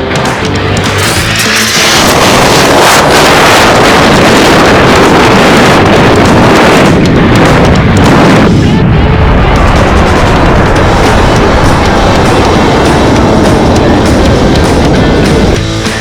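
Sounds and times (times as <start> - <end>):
car wash equipment rushing: 0.1 - 8.7
air blasting against car: 0.5 - 5.6
water spray: 1.0 - 4.1.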